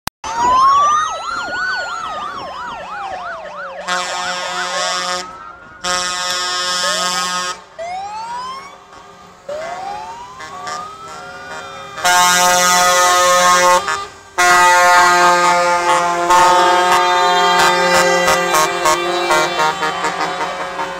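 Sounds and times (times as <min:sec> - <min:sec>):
sirens wailing and yelping: 0:00.2 - 0:20.9
truck air horn blasts: 0:03.8 - 0:07.7, 0:10.4 - 0:20.9.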